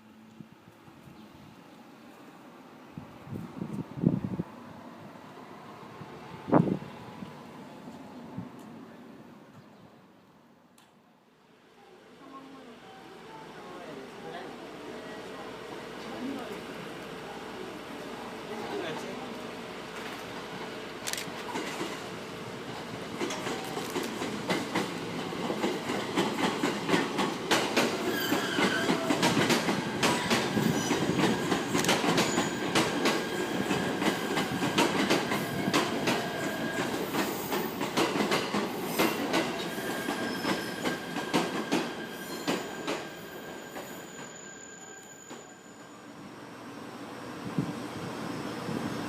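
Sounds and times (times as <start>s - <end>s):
thin wheel squeals: 42.0s - 46.1s.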